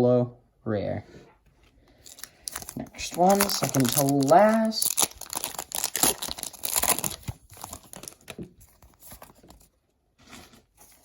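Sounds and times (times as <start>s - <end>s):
foil wrapper tearing and crinkling: 2.0s - 9.6s.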